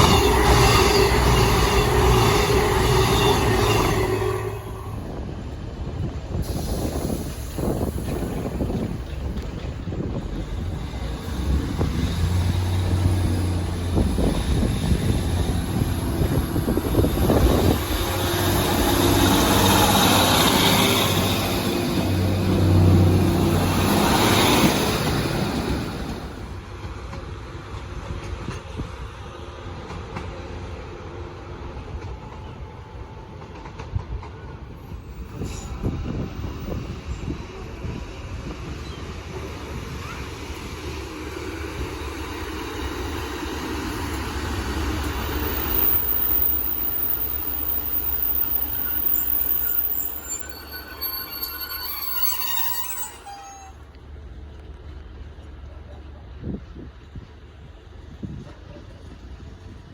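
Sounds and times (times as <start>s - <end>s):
wind noise on microphone: 0.0s - 21.6s, 33.8s - 42.2s, 56.4s - 59.9s
diesel train passing: 0.0s - 59.9s
wheel and rail noise: 0.0s - 59.9s.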